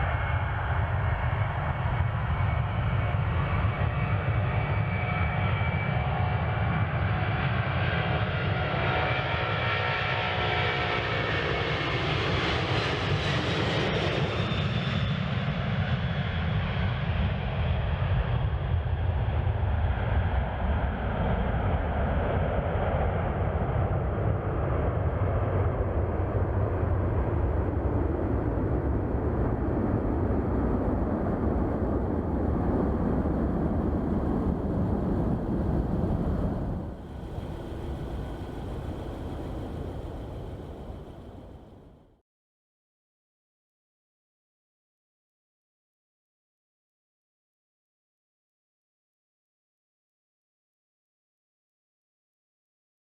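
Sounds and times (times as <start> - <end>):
jet engine high whine: 0.0 - 42.2
jet engine low rumble: 0.0 - 42.2.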